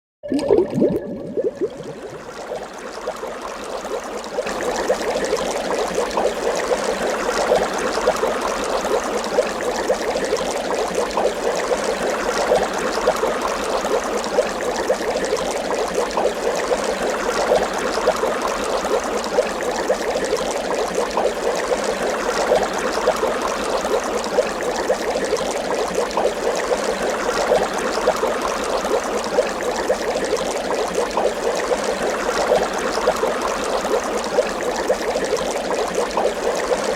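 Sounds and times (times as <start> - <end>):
water bubbling: 0.2 - 7.8.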